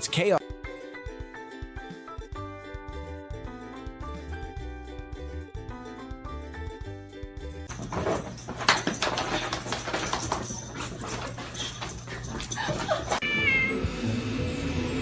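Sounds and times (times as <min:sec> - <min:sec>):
background music: 0:00.0 - 0:07.7, 0:13.1 - 0:15.0
scuffling: 0:07.7 - 0:13.2.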